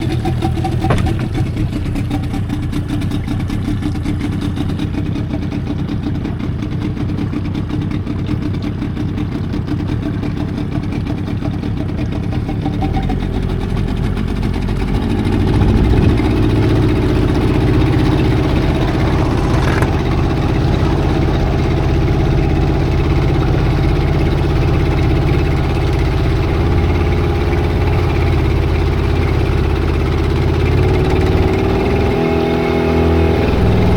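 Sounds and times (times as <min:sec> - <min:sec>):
engine running: 0:00.0 - 0:33.9.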